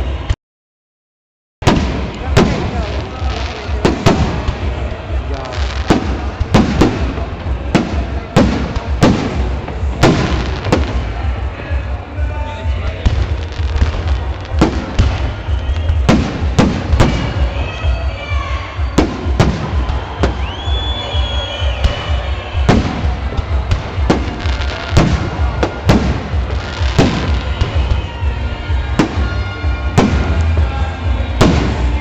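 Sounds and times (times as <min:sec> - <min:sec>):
firework whistling: 0:13.2 - 0:32.0.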